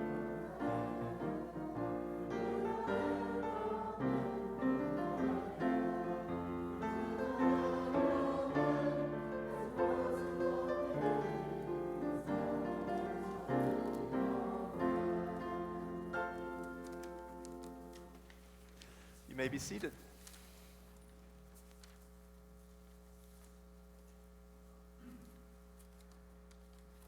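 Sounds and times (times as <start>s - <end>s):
piano music: 0.0s - 18.2s.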